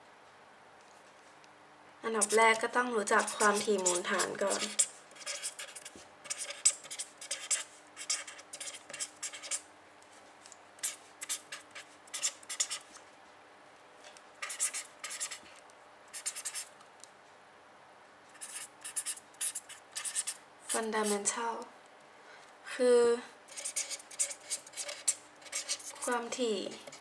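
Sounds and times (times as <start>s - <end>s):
pen scratching on paper: 2.2s - 9.6s, 10.8s - 12.9s, 14.4s - 15.4s, 16.1s - 16.7s, 18.4s - 21.2s, 23.5s - 27.0s.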